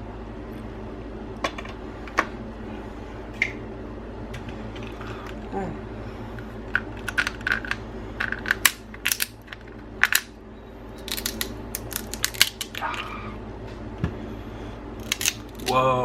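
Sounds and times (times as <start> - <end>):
crab shells cracking: 6.8 - 10.3, 11.0 - 13.1, 15.0 - 15.7.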